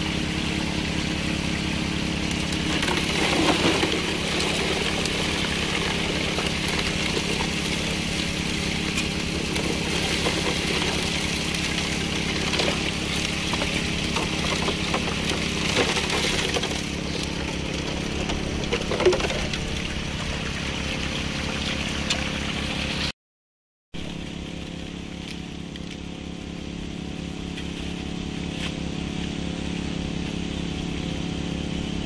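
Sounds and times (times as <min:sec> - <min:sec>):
small water pump engine running: 0:00.0 - 0:23.1, 0:24.0 - 0:32.0
water running through sluice: 0:00.0 - 0:23.1
gravel rattling through hopper: 0:01.1 - 0:23.1.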